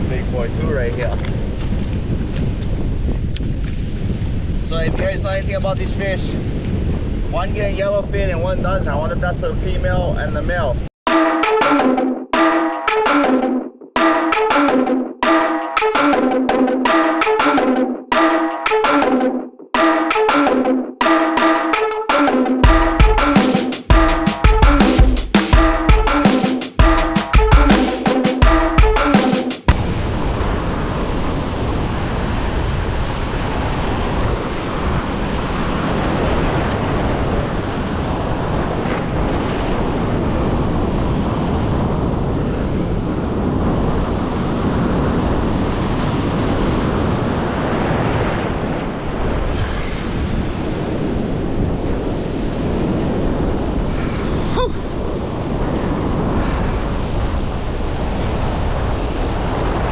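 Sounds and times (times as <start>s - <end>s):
wind buffeting microphone: 0.0s - 10.9s, 29.7s - 59.9s
ocean surf on shore: 19.8s - 59.9s.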